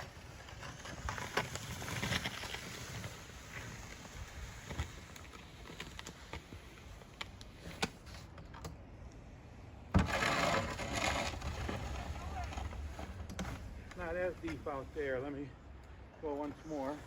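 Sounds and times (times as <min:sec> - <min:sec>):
garden tractor running: 0:09.9 - 0:15.5.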